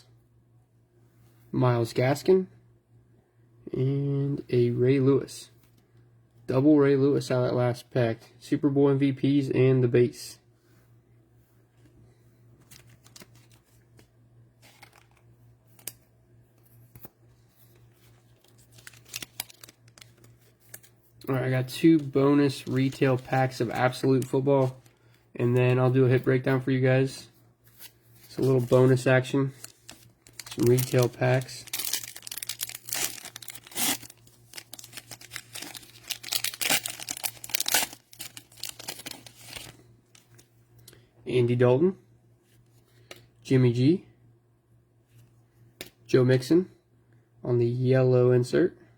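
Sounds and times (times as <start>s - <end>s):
cards rustling and clicking: 12.6s - 26.6s, 27.7s - 40.4s
foil wrapper tearing and crinkling: 18.4s - 20.9s, 29.6s - 40.4s.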